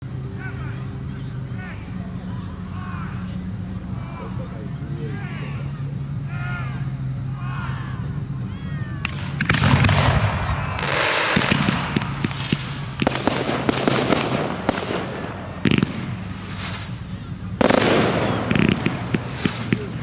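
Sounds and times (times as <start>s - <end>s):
voices: 0.0s - 20.0s
fireworks booming: 9.0s - 20.0s
fireworks cracking and crackling: 9.0s - 20.0s.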